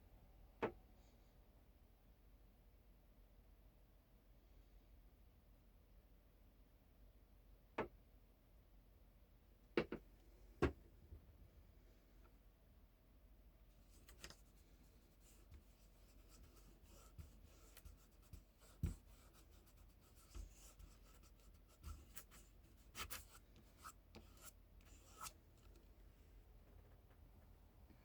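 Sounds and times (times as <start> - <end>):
brush strokes scratching: 13.9 - 25.4.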